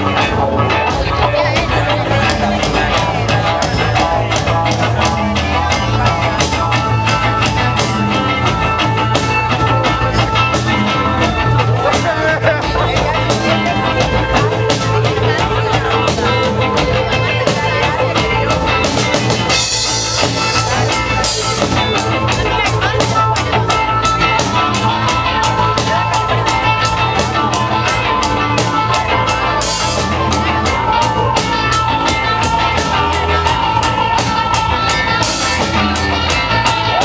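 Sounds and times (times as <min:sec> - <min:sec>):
rock music on drums and guitar: 0:00.0 - 0:37.0.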